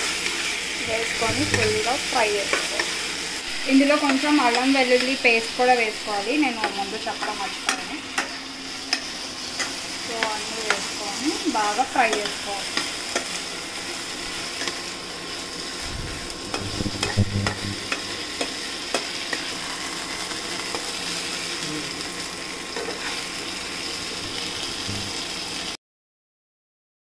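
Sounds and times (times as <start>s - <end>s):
chicken sizzling in a pan: 0.0s - 25.8s
metal spatula scraping a pan: 16.4s - 19.5s, 22.8s - 23.3s.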